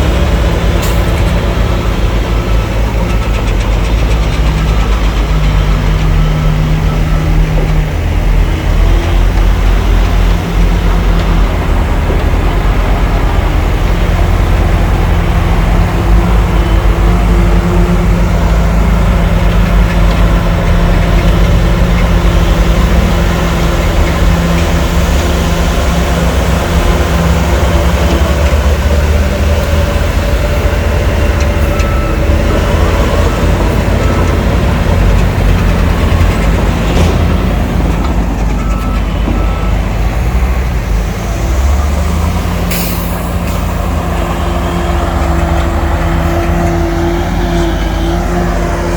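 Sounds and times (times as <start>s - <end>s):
heavy diesel engine humming: 0.0s - 48.9s.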